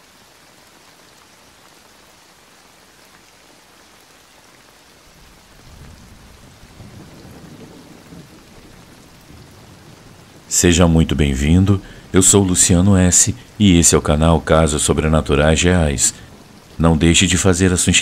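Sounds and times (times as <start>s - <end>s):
steady rain falling: 0.0s - 18.0s
low roll of thunder: 5.2s - 14.1s.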